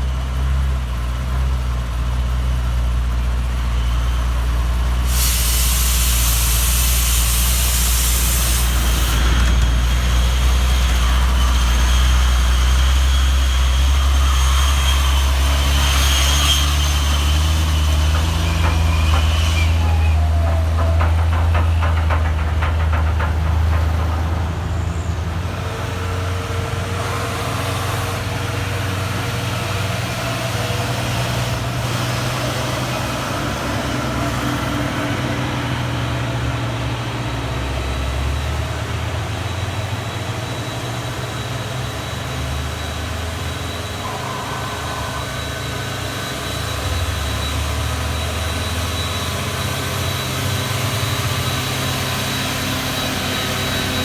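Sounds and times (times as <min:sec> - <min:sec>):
truck diesel engines droning: 0:00.0 - 0:54.0
thin high whine: 0:42.4 - 0:49.3.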